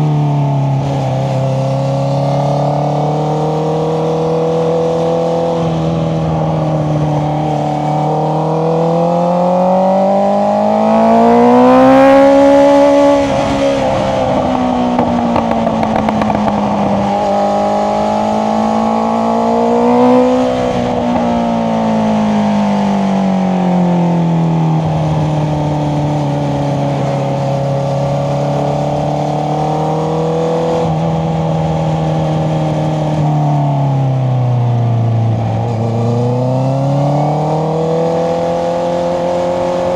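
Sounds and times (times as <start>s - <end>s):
motorcycle engine revving: 0.5s - 39.9s
exhaust crackling: 11.2s - 22.6s.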